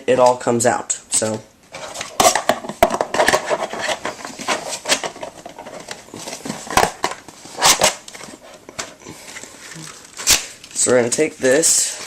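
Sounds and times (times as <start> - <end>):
card packaging rustling: 1.7 - 12.0.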